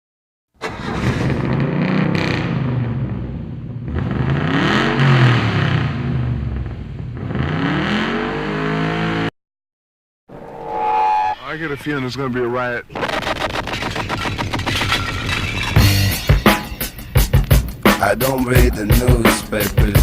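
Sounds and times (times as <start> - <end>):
motorcycle engine revving: 0.8 - 9.3.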